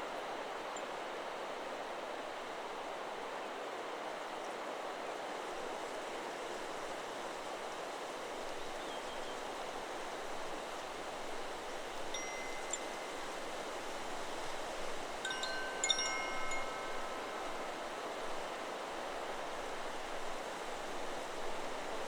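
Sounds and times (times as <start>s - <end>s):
wind through trees: 0.0s - 22.0s
wind chime ringing: 12.2s - 13.6s, 15.2s - 18.6s.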